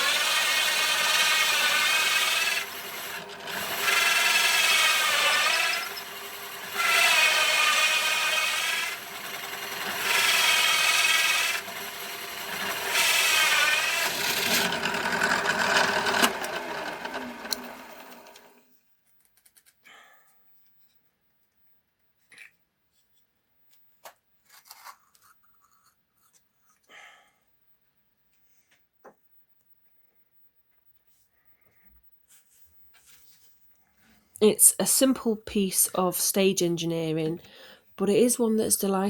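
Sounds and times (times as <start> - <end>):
machine whining: 0.0 - 18.6.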